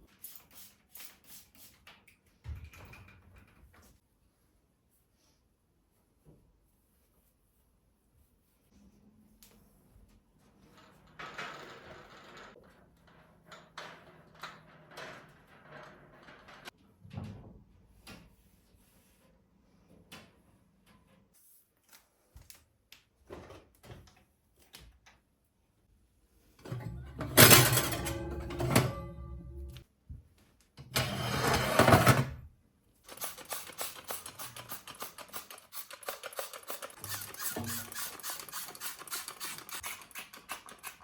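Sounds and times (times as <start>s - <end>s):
scrape: 18.4s - 19.4s
loud ringing clatter: 27.2s - 29.8s.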